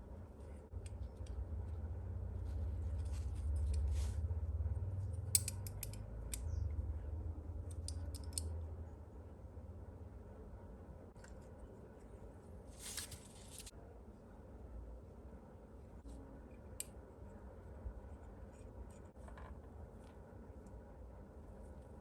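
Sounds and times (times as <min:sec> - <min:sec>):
handling rumble of small parts: 0:00.0 - 0:09.3, 0:17.8 - 0:22.0.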